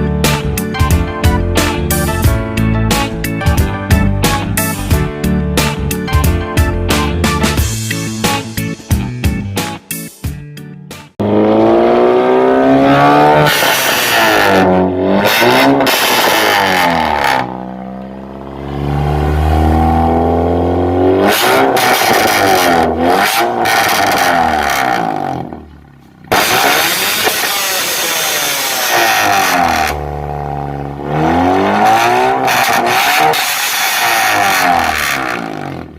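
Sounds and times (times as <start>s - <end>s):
car engine revving: 11.2s - 35.9s.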